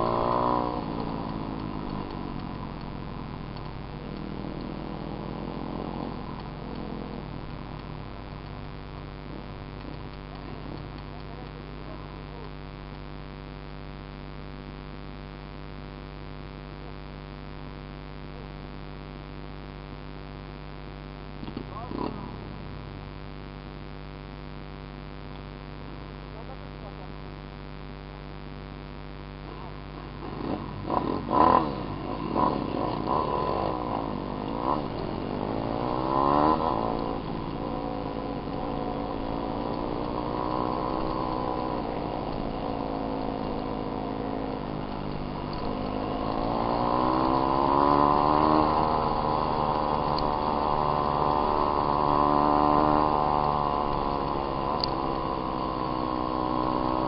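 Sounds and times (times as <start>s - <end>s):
dirt bike engine revving: 0.0s - 12.5s, 21.4s - 22.8s, 30.0s - 57.0s.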